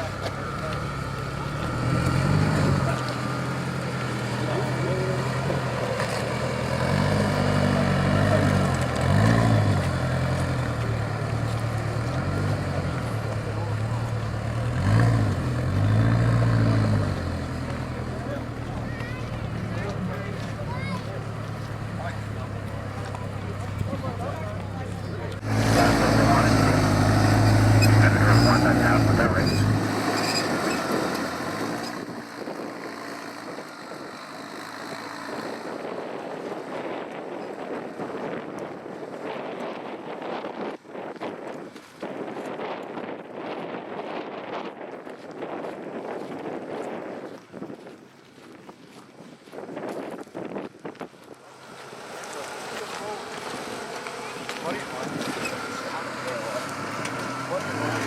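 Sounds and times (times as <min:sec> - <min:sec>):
buggy engine revving: 0:00.0 - 0:38.4, 0:51.3 - 0:58.0.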